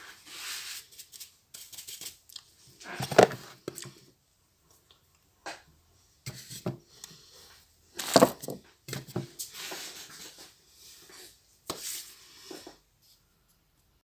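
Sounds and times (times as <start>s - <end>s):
objects knocking and scraping: 2.8s - 4.0s, 5.5s - 6.8s, 8.0s - 10.4s.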